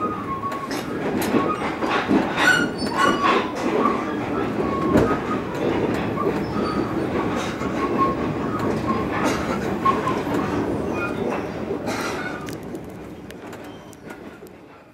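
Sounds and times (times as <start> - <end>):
train rolling rumble: 0.0 - 14.9.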